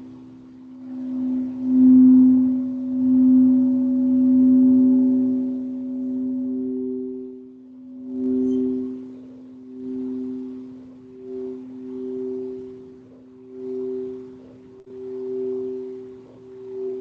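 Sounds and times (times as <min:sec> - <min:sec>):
singing bowls ringing: 0:00.0 - 0:17.0.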